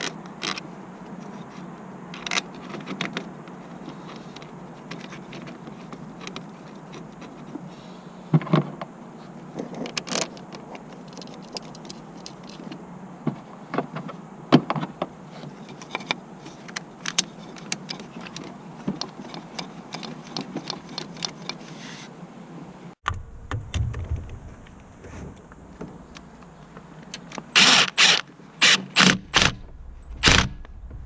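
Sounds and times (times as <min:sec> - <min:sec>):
low rumble: 0:23.0 - 0:26.2, 0:29.3 - 0:31.0.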